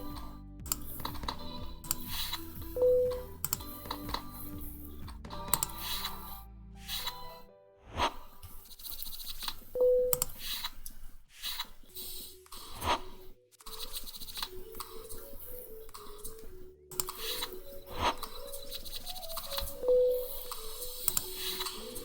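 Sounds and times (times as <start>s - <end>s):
brief tone: 1.4s - 4.6s, 9.8s - 10.4s, 14.6s - 22.0s.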